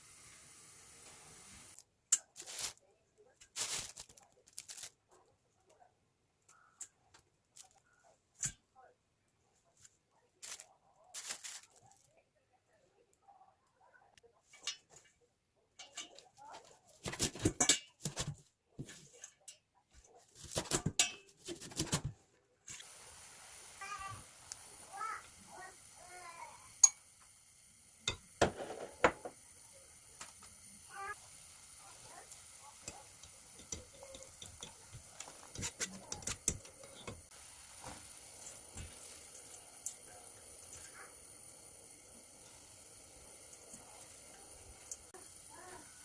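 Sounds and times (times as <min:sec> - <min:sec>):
faint steady hiss: 0:00.0 - 0:04.9, 0:22.5 - 0:46.0.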